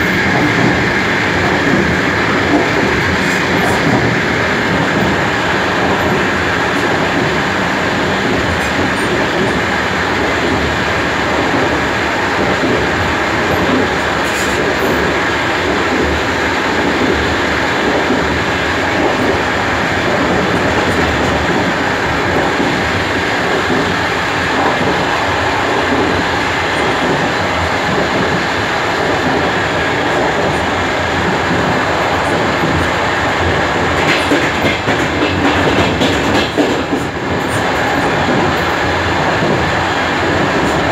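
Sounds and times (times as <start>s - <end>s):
train wheels clattering on rails: 0.0s - 40.9s.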